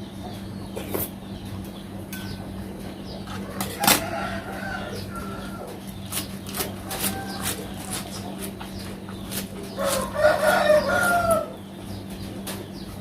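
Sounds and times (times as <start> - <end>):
chickens clucking: 0.0 - 13.0
rooster crowing: 3.4 - 5.8, 6.8 - 8.0, 9.8 - 11.6.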